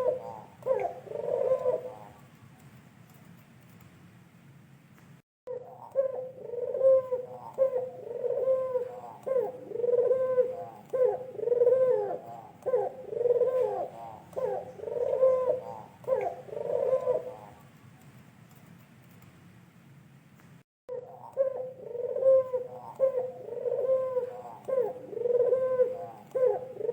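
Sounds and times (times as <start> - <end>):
bird cooing: 0.0 - 2.2, 5.5 - 17.6, 20.9 - 26.9.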